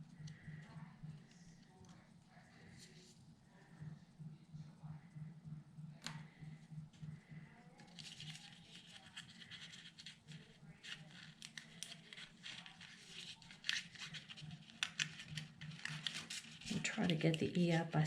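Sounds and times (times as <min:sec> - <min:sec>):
cardstock rustling and scratching: 0:07.8 - 0:18.0.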